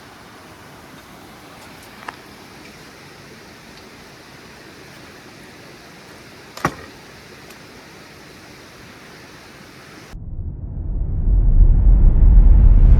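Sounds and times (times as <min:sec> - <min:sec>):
background hiss: 0:00.0 - 0:10.2.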